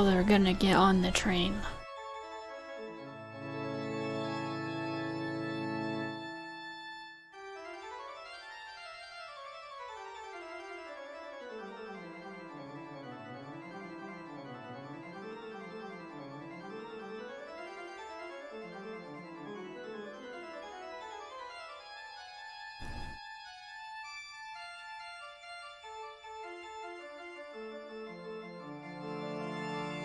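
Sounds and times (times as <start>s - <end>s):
organ playing fast runs: 3.2s - 6.5s.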